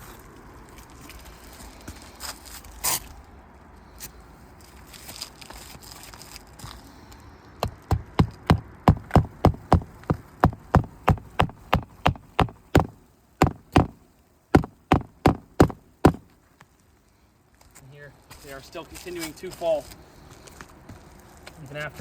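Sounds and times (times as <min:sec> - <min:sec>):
hammer striking shingle roof: 0:07.6 - 0:14.0, 0:14.6 - 0:16.3.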